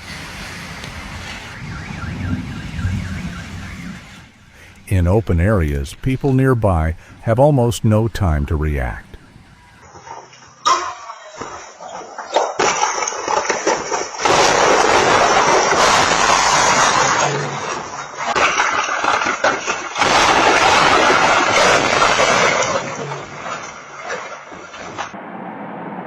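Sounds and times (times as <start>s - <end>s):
strong wind blasting microphone: 0.0s - 4.7s.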